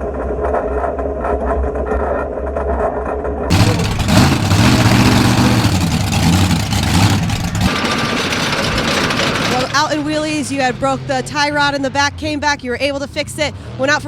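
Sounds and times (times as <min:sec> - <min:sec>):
engine revving: 0:03.5 - 0:11.9
truck engines droning: 0:03.5 - 0:14.0.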